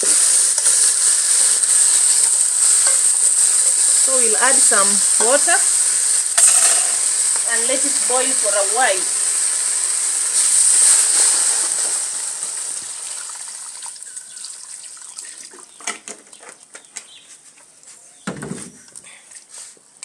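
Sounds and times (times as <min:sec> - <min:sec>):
water pouring into a pot: 0:00.0 - 0:15.7.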